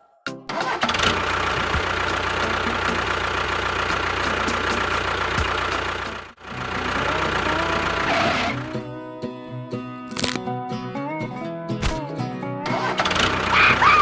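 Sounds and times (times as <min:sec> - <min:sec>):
engine running: 0:00.5 - 0:08.9, 0:12.7 - 0:14.0.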